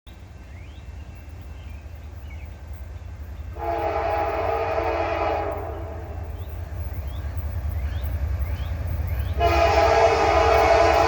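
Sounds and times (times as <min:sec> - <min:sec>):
low train engine rumble: 0:00.1 - 0:11.0
locomotive air horn blast: 0:03.6 - 0:06.2, 0:09.4 - 0:11.0.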